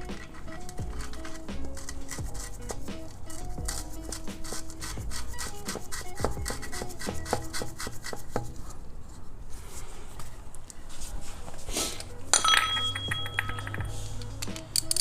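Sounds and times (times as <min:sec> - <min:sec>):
metal tools clinking: 0:12.0 - 0:15.0
socket ratchet clicking: 0:13.0 - 0:15.0.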